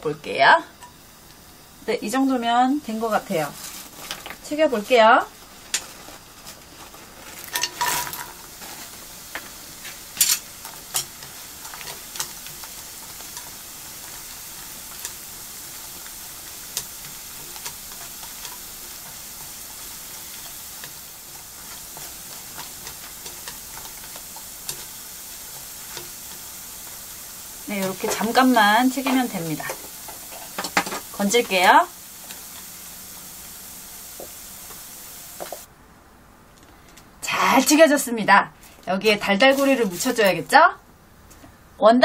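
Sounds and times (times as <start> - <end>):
food sizzling in oil: 0.0 - 35.7, 37.2 - 40.8
chopsticks tapping a pan: 7.5 - 8.4, 9.3 - 31.6, 34.1 - 35.7.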